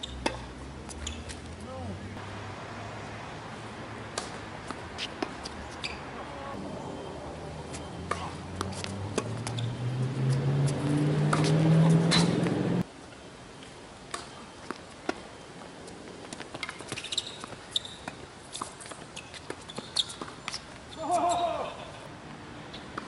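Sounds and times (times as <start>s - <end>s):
sneaker squeaks: 0.0s - 1.5s, 4.9s - 6.4s, 7.0s - 12.6s, 16.5s - 21.6s
tennis ball hits: 4.1s - 5.9s, 8.0s - 9.7s, 10.3s - 12.7s
vehicle engine speeding up: 8.4s - 12.8s.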